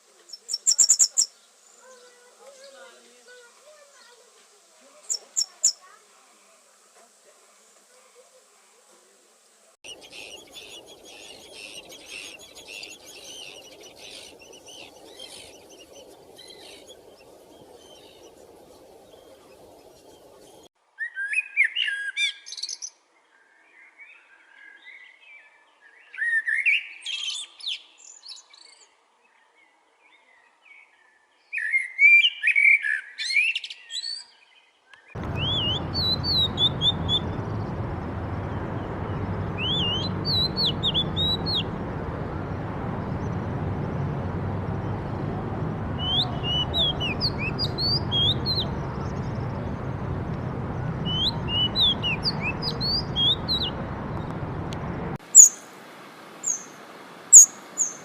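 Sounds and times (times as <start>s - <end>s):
songbirds singing: 0.2s - 4.2s, 5.0s - 6.0s, 9.8s - 55.6s, 56.4s - 58.0s
whistled bird chirps: 9.9s - 22.9s, 35.0s - 44.2s, 46.0s - 49.9s, 51.0s - 54.3s.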